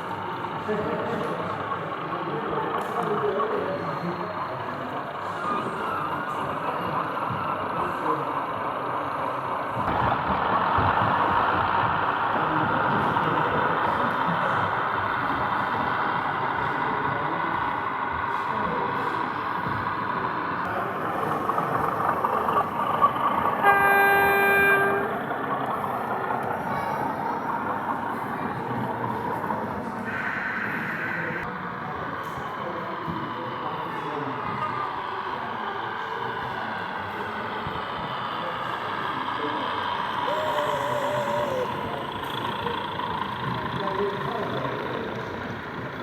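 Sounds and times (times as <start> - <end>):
hall crowd hubbub: 0.0 - 46.0
model train running: 0.0 - 46.0
model locomotive horn toot: 23.0 - 26.5.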